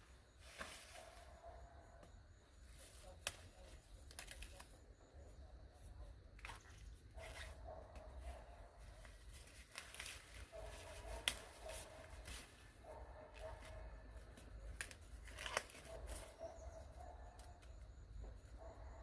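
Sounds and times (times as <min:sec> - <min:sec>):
faint tearing and crackling: 0:03.1 - 0:04.8, 0:09.0 - 0:12.6, 0:14.6 - 0:16.4.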